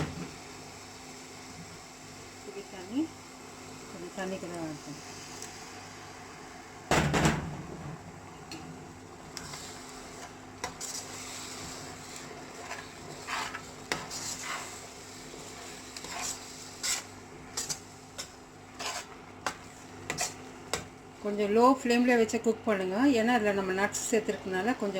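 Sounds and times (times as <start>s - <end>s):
loud thump: 6.9s - 7.6s
metal spoon scraping in a pan: 9.3s - 20.8s.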